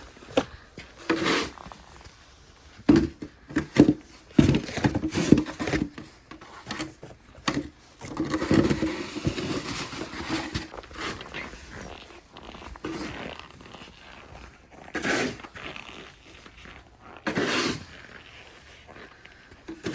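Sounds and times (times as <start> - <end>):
shovel scraping snow: 0.9 - 2.6, 8.2 - 19.9.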